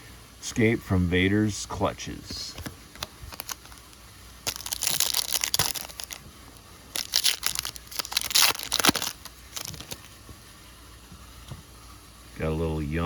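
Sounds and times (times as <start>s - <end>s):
foil wrapper crinkling: 2.5s - 10.2s.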